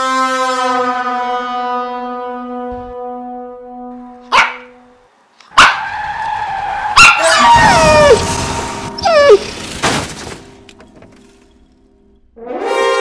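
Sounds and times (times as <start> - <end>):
held horn-like tone: 0.0 - 5.0, 12.4 - 13.0
dog yelp falling in pitch: 4.3 - 4.7, 7.0 - 8.2, 9.0 - 9.5
cartoon dog barking: 4.3 - 4.8, 7.0 - 8.2
tyres skidding: 5.4 - 12.2.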